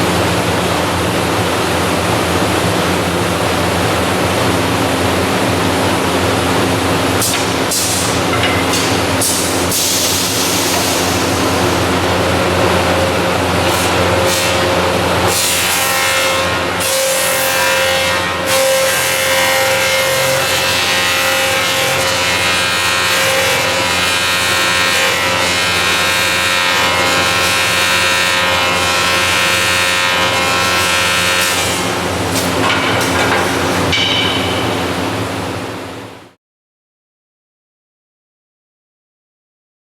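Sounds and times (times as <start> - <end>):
lathe machining wood with whine: 1.3 - 32.8.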